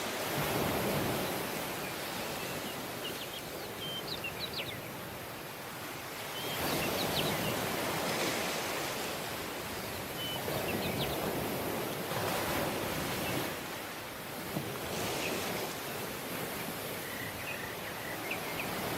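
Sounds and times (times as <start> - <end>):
surf washing onto beach: 0.0 - 18.9
faint bird chirps: 1.3 - 5.5, 6.2 - 7.7, 16.8 - 18.9.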